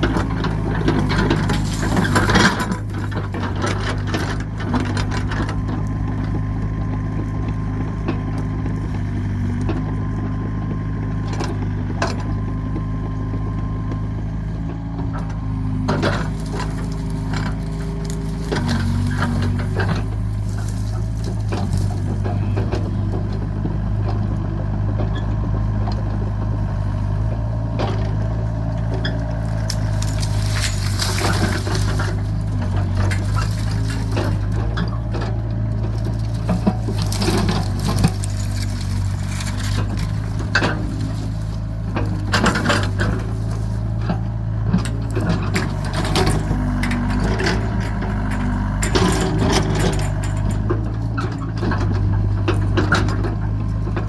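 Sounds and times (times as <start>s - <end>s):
excavator diesel engine: 0.0s - 54.0s.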